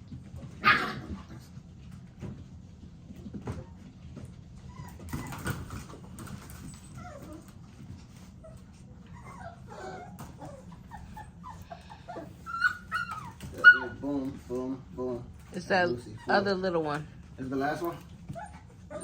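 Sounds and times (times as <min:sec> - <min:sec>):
puppies whimpering and whining: 0:03.1 - 0:14.7, 0:15.3 - 0:19.0.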